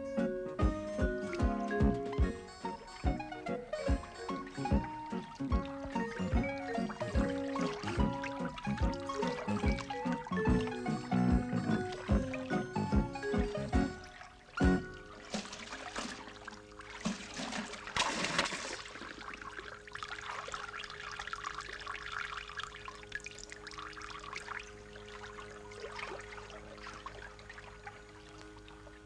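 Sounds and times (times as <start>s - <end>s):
faint steady hum: 0.0s - 29.0s
water splashing and trickling: 0.7s - 29.0s.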